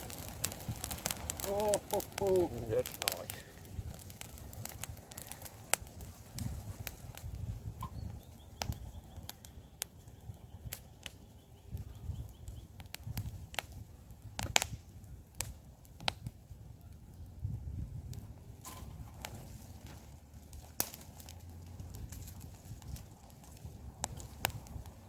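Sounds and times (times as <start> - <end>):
campfire crackling and popping: 0.0 - 25.0
fire rumbling: 0.0 - 25.0.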